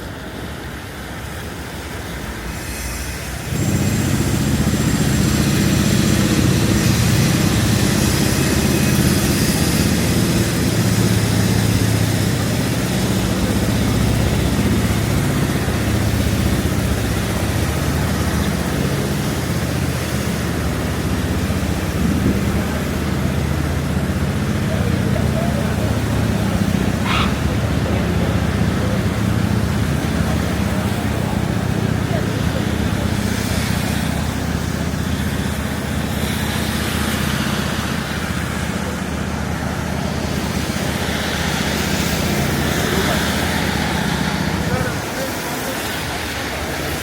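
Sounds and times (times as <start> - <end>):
hiss of wet street: 0.0 - 47.0
large vehicle engine rumbling: 0.0 - 47.0.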